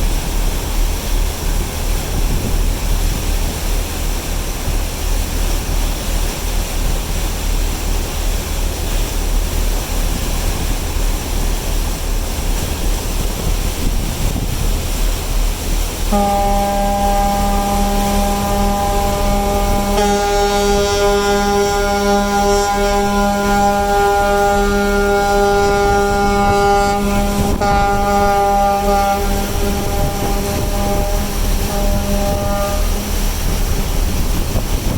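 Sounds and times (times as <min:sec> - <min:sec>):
steady rushing rumble: 0:00.0 - 0:16.2, 0:16.9 - 0:34.9
ferry horn blast: 0:16.1 - 0:33.8.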